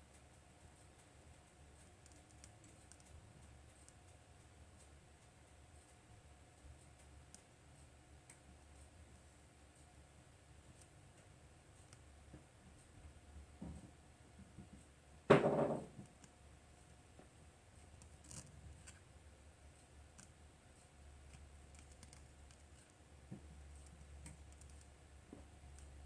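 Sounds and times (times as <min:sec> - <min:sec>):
sharp knock: 0:15.3 - 0:16.0.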